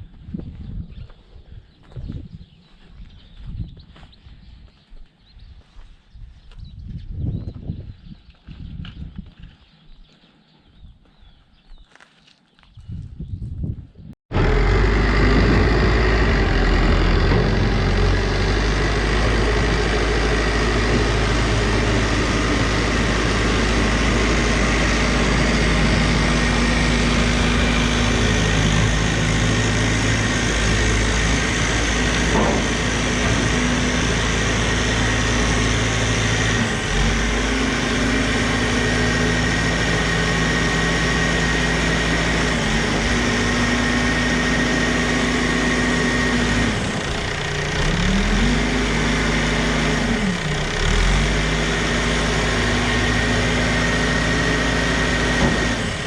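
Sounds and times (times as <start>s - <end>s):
tractor engine running: 14.3s - 56.0s.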